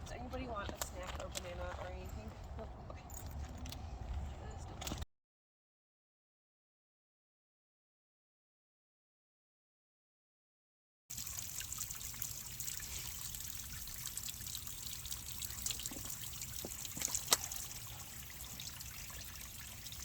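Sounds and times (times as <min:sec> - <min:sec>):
small stream trickling: 0:11.1 - 0:20.0.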